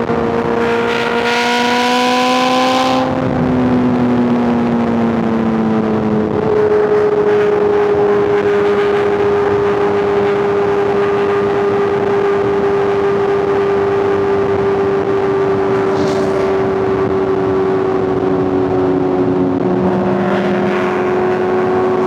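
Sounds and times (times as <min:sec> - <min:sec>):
motorcycle engine cruising: 0:14.4 - 0:17.7.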